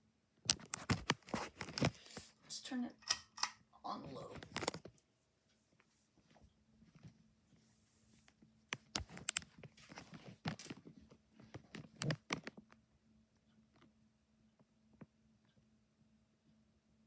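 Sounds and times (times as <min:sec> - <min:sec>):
clicks and knocks: 0:03.0 - 0:03.6.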